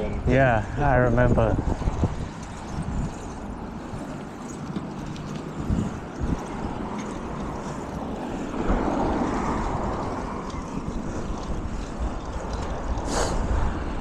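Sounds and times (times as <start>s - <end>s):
bicycle tyres on path: 0.0s - 14.0s
wind on microphone: 0.0s - 14.0s
brief sharp hiss: 13.1s - 13.4s.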